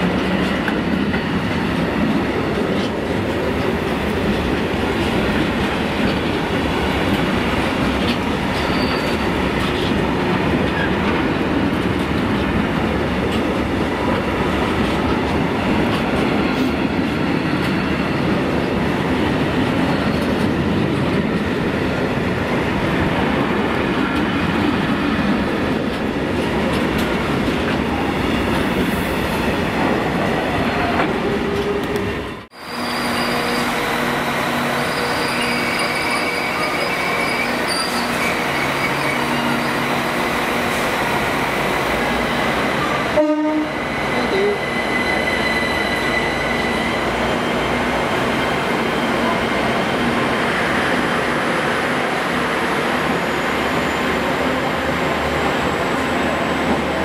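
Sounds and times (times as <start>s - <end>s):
freight train rolling on track: 0.0s - 57.0s
electric train squeal: 8.6s - 9.4s, 32.6s - 40.0s, 43.8s - 47.8s.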